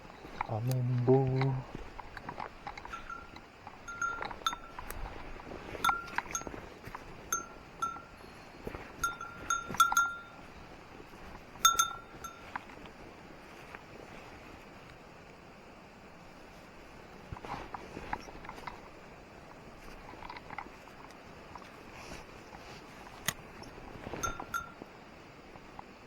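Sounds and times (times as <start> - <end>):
small metal bell ringing: 2.8 - 5.0, 5.8 - 6.6, 7.3 - 10.5, 11.6 - 12.6, 24.2 - 24.8.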